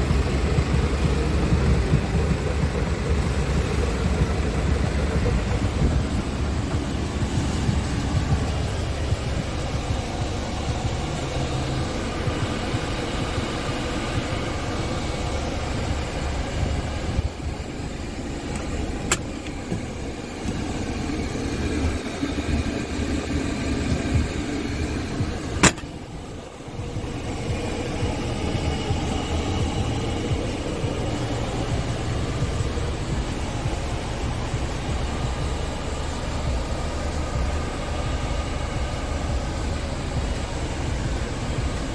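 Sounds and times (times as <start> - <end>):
diesel truck engine running: 0.0 - 41.9
sharp clicks: 18.5 - 20.8.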